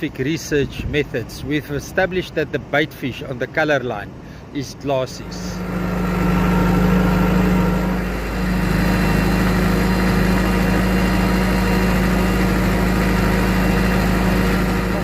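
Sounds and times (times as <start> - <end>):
engine idling: 5.1 - 15.0.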